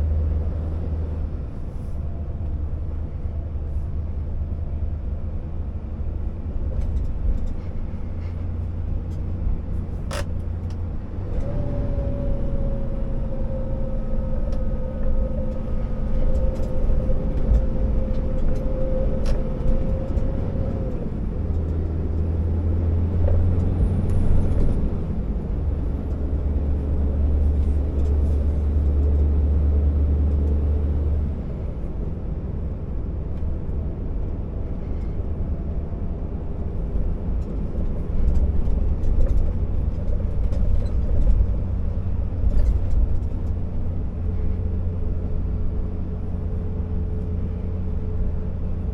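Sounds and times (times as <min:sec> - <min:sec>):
diesel truck engine running: 0:00.0 - 0:48.9
steady whine: 0:12.4 - 0:22.2.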